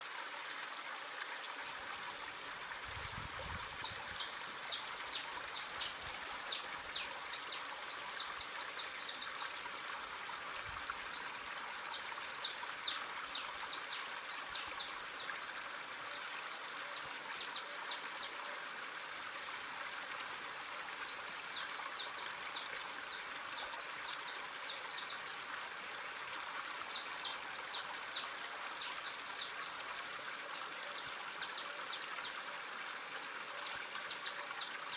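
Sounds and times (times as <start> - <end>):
stream rushing: 1.1 - 15.8, 21.4 - 34.9
small birds chirping: 2.6 - 15.6, 20.2 - 25.4, 26.0 - 29.8.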